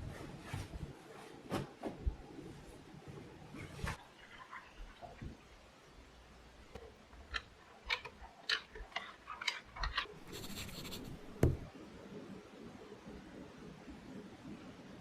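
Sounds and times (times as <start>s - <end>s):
sharp knock: 11.4s - 11.7s.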